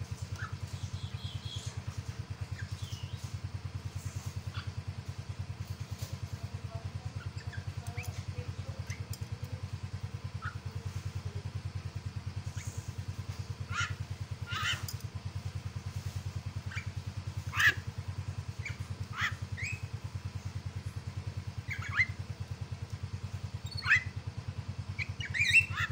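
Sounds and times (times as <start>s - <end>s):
low pulsing hum: 0.0s - 25.9s
bird giving sharp calls: 10.4s - 10.7s, 13.6s - 14.9s, 16.6s - 19.9s, 21.6s - 22.2s, 23.6s - 24.2s, 24.9s - 25.9s.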